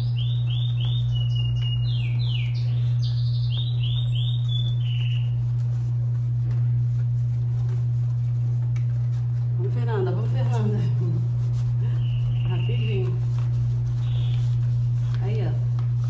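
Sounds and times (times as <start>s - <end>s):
small bird chirping: 0.0s - 5.4s, 14.0s - 14.5s
steady low hum: 0.0s - 16.0s.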